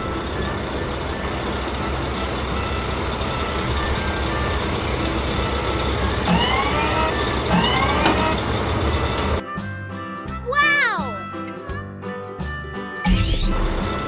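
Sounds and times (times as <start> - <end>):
cartoon engine low rumble: 0.0 - 9.4
short rising tones: 0.0 - 9.4.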